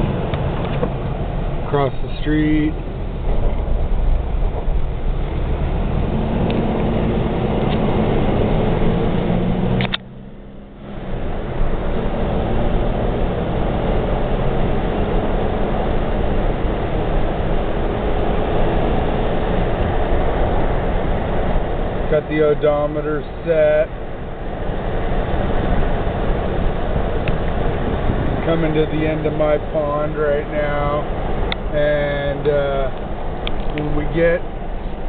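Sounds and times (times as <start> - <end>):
car interior road noise: 0.0 - 35.0.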